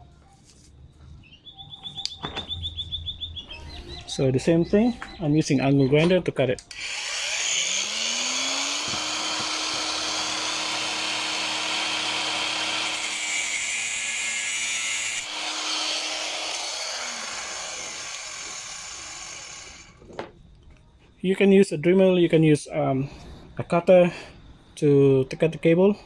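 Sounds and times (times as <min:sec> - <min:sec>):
grinder disc cutting cable: 0:06.6 - 0:20.0
angle grinder motor whine: 0:06.7 - 0:20.0
grinder winding down: 0:06.7 - 0:20.0.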